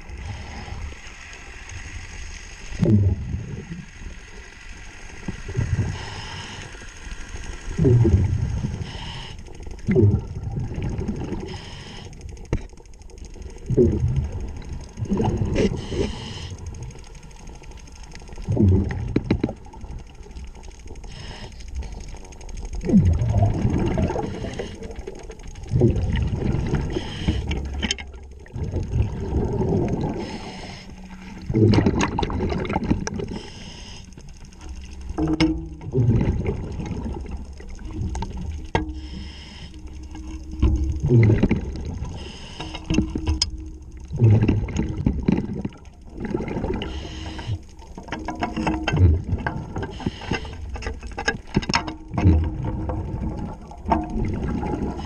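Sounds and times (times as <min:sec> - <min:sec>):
scuba regulator breathing: 0:00.1 - 0:01.4, 0:05.7 - 0:07.4, 0:08.0 - 0:09.8, 0:11.3 - 0:12.5, 0:15.2 - 0:17.0, 0:21.0 - 0:22.3, 0:23.9 - 0:25.2, 0:26.6 - 0:27.8, 0:29.6 - 0:31.6, 0:33.0 - 0:34.8, 0:38.8 - 0:40.6, 0:42.0 - 0:43.3, 0:46.7 - 0:47.9, 0:49.6 - 0:51.0
exhaled bubbles surging: 0:02.6 - 0:04.4, 0:07.7 - 0:11.5, 0:13.5 - 0:17.0, 0:18.2 - 0:20.3, 0:22.7 - 0:38.8, 0:39.8 - 0:47.9, 0:48.8 - 0:49.9, 0:52.1 - 0:55.0
faint clicks: 0:03.8 - 0:55.0.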